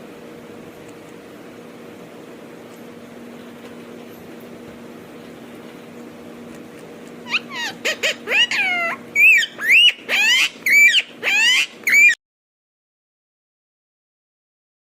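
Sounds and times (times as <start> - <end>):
steady low hum: 0.0 - 12.2
parrot high-pitched calls: 7.2 - 12.2.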